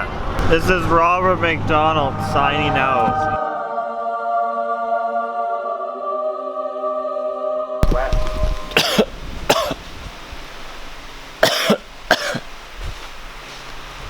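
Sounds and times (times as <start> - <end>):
background music: 1.6 - 9.7
fan humming: 7.8 - 14.0
person coughing: 8.7 - 9.8, 11.4 - 12.5.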